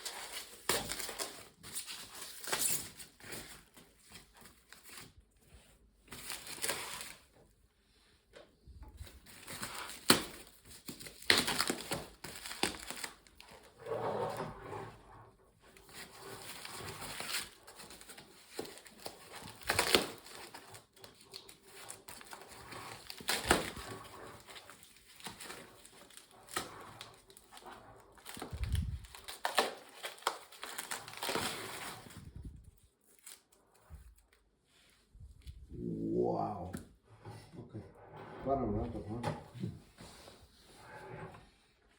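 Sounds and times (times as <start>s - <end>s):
packaging crinkling and rustling: 0.0s - 7.4s, 9.0s - 13.8s, 15.6s - 34.5s.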